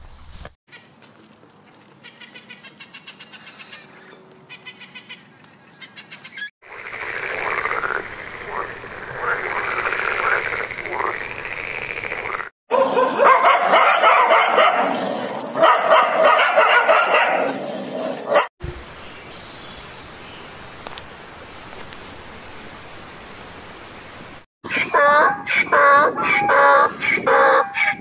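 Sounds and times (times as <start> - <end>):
frog croaking: 6.6 - 12.5
dogs barking and yipping: 12.7 - 18.5, 24.7 - 28.0.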